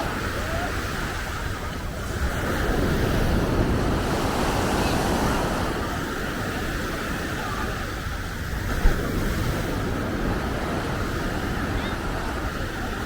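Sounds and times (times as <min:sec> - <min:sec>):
ocean surf breaking: 0:00.0 - 0:13.0
wind buffeting microphone: 0:00.0 - 0:13.0.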